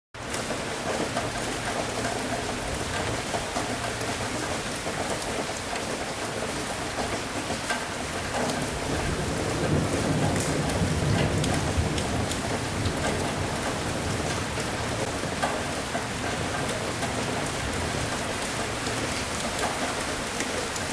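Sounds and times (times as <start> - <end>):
heavy rain falling: 0.2 - 20.9
thunder rumbling: 8.6 - 15.2.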